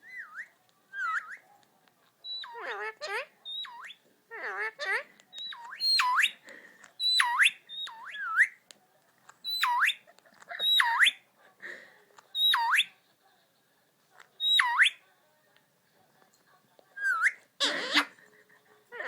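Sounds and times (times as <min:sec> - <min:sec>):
parakeet whistling: 0:00.0 - 0:01.5, 0:02.2 - 0:02.7, 0:03.4 - 0:04.0, 0:05.3 - 0:06.4, 0:07.0 - 0:08.6, 0:09.4 - 0:10.0, 0:10.6 - 0:11.2, 0:12.4 - 0:12.9, 0:14.4 - 0:15.0, 0:17.0 - 0:18.1.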